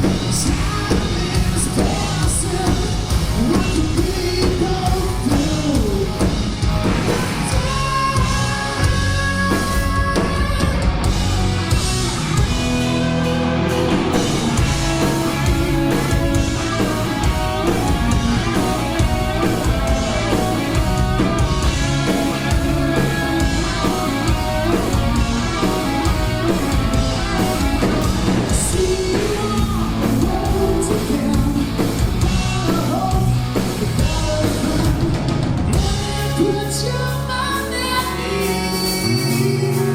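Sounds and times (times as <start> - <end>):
hard rock band playing: 0.0 - 39.9
person singing: 7.0 - 11.0, 15.0 - 39.9.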